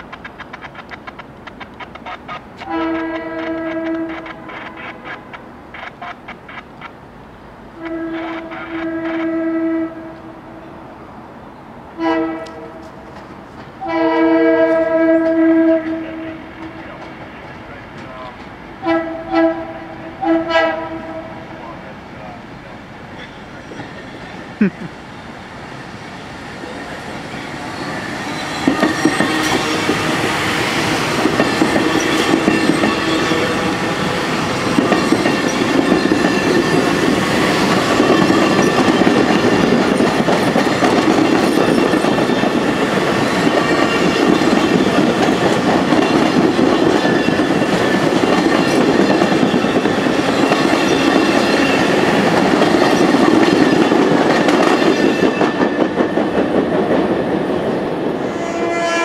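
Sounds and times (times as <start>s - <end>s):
wheels clicking over rail joints: 0.0s - 7.1s, 31.2s - 57.2s
passenger train passing: 0.0s - 59.0s.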